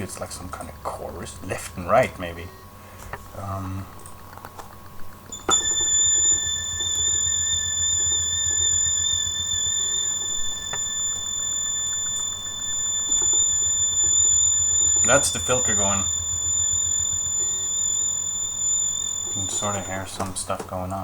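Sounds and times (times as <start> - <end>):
rapid low pulsing: 5.3 - 20.2
high synth tone: 5.3 - 20.4.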